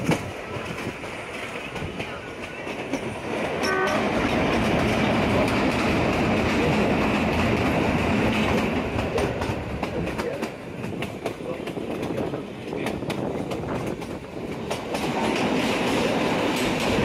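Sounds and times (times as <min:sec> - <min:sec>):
train wheels clattering: 0:00.0 - 0:17.0
train horn toot: 0:03.6 - 0:04.2.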